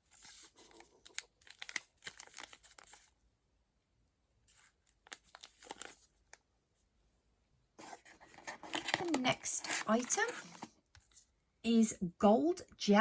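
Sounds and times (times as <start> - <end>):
packaging crinkling and rustling: 0.0 - 3.2, 4.5 - 6.4, 7.8 - 10.7.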